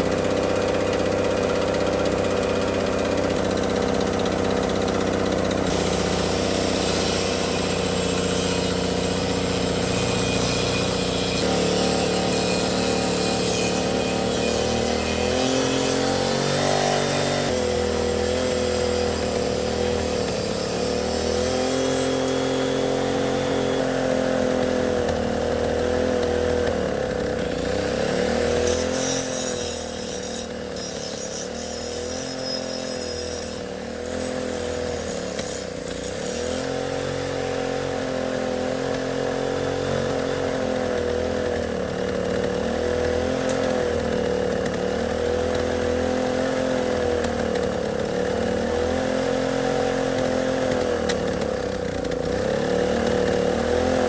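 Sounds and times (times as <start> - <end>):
generator engine running: 0.0 - 8.4.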